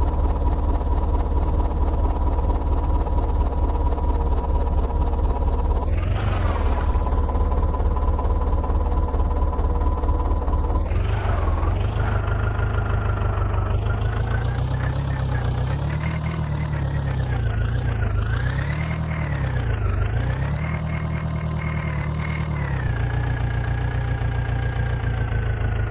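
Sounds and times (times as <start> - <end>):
diesel engine revving: 5.8 - 25.9.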